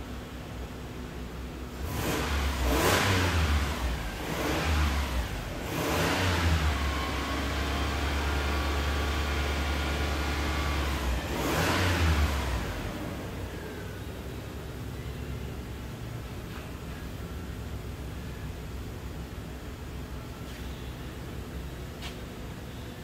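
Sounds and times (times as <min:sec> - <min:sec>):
car engine revving: 0:01.8 - 0:13.7.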